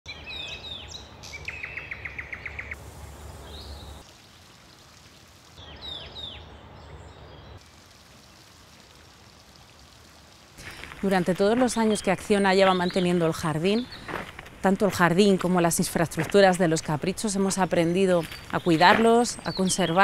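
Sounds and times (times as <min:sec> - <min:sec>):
small birds chirping: 0:10.6 - 0:15.4, 0:16.6 - 0:20.0.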